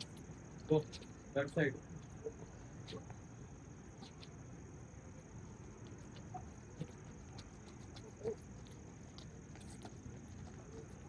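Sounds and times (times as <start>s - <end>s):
small ticks: 0.0s - 3.2s, 3.8s - 11.0s
insects trilling: 0.0s - 11.0s.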